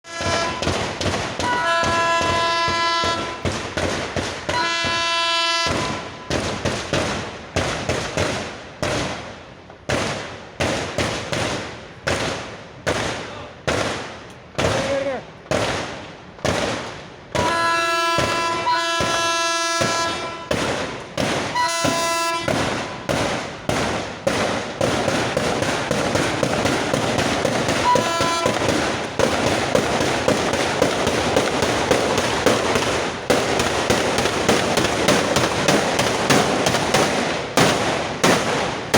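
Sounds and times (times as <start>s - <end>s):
train horn: 0.0s - 0.6s, 1.4s - 3.4s, 4.5s - 6.2s, 17.4s - 20.5s, 21.6s - 23.0s, 27.8s - 28.6s
track detonators banging: 0.0s - 8.4s, 16.4s - 38.9s.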